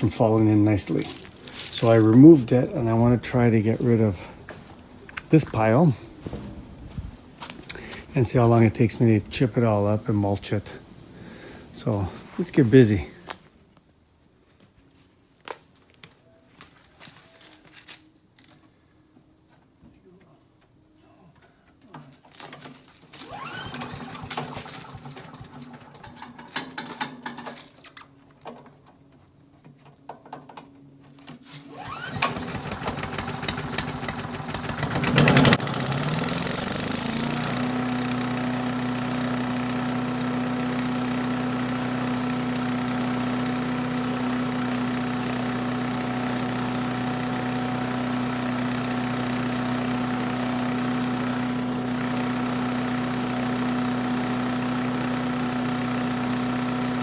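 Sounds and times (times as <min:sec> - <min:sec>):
small gas engine starting and running: 0:23.1 - 0:27.7, 0:31.4 - 0:57.0.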